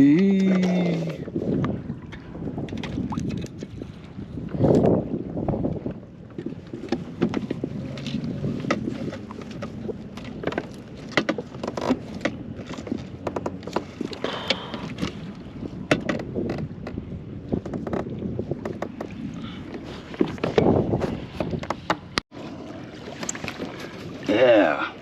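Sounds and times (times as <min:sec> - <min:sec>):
wind: 0:00.0 - 0:25.0
knocks and clicks on plastic kayak: 0:05.8 - 0:15.2, 0:15.8 - 0:22.3
water rushing: 0:22.3 - 0:25.0.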